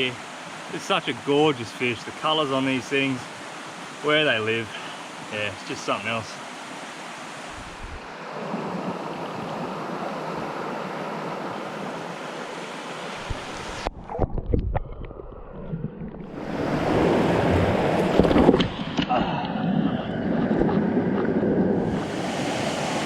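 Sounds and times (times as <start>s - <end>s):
water rushing over rocks: 0.0s - 23.0s.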